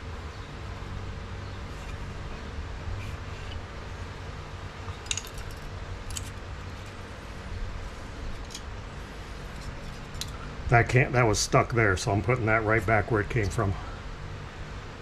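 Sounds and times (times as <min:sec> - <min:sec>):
steady low hum: 0:00.0 - 0:15.0
light metallic clinks: 0:04.8 - 0:07.0.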